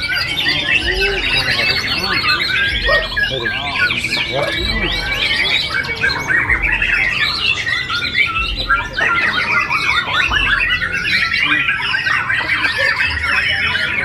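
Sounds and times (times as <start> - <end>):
songbirds singing: 0.0 - 14.0.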